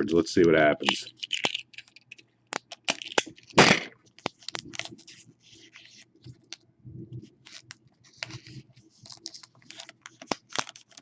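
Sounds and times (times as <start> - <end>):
cards clicking and rustling: 0.1 - 6.6, 7.4 - 11.0
card pack ripping open: 7.5 - 11.0.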